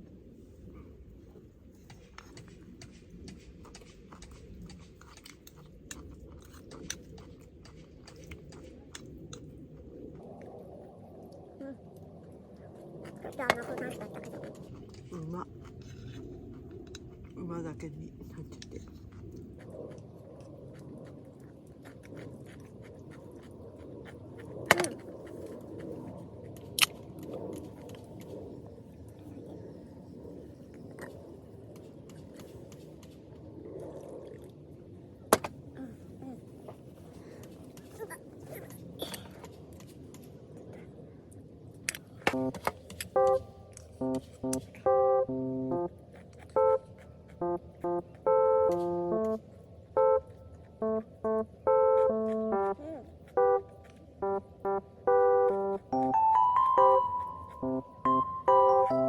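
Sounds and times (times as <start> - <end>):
person chewing food: 18.9 - 26.8, 55.5 - 58.7.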